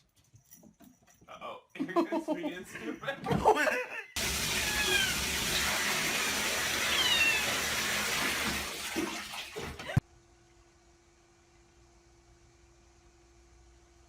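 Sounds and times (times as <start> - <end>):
cat meowing: 4.5 - 5.5, 6.6 - 7.8.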